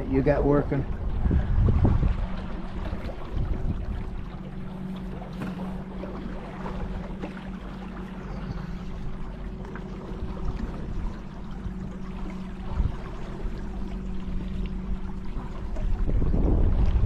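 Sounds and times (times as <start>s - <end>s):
wind noise on microphone: 0.0s - 4.3s, 12.6s - 13.2s, 15.3s - 17.0s
boat motor hum: 0.0s - 17.0s.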